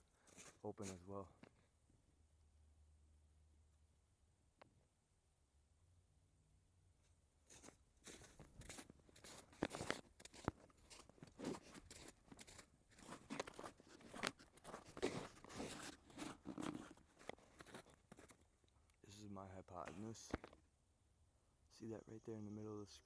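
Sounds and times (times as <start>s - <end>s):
crunching and rustling: 7.5s - 18.5s.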